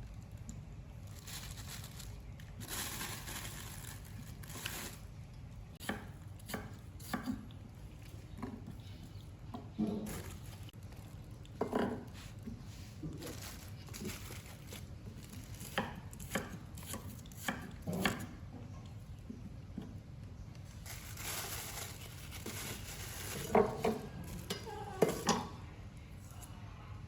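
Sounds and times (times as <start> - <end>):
dishes knocking and clattering: 23.4 - 25.6.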